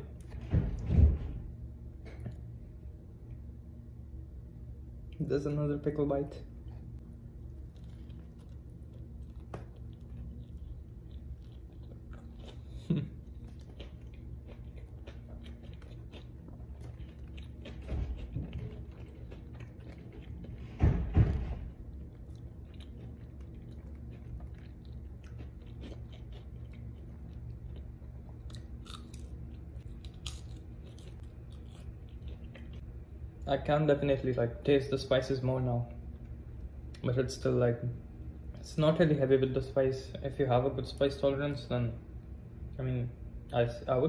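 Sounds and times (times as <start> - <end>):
crunchy chewing: 7.4 - 20.8, 21.7 - 33.0.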